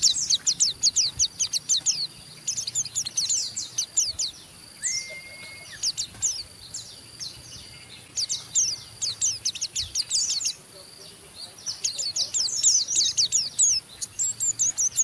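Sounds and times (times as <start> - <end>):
birds twittering: 0.0 - 15.0
short held bird whistle: 4.8 - 6.1.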